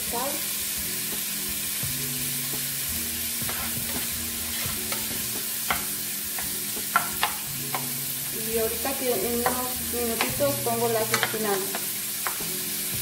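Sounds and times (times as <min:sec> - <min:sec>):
vegetables sizzling in frying pan: 0:00.0 - 0:13.0
spatula scraping and knocking pan: 0:03.4 - 0:08.1, 0:08.8 - 0:13.0.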